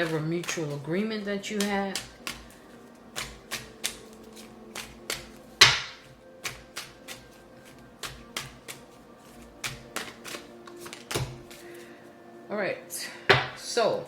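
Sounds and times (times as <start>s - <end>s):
soft background music: 0.0s - 14.0s
cards clicking on a table: 3.2s - 5.4s.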